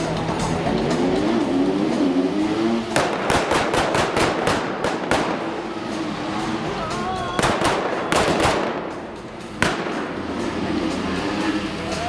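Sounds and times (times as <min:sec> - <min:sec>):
car engine revving: 0:00.0 - 0:12.0
rapid sharp bangs: 0:00.0 - 0:12.0.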